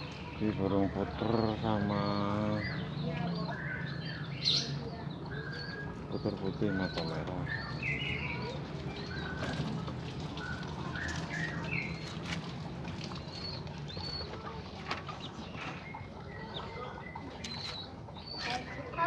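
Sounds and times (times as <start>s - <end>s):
doves fluttering wings: 8.2s - 15.6s.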